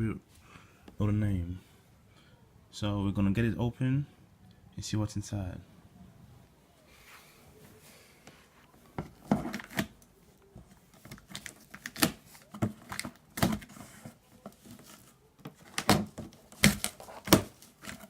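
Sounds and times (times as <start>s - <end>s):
cardboard scraping: 11.0s - 18.0s.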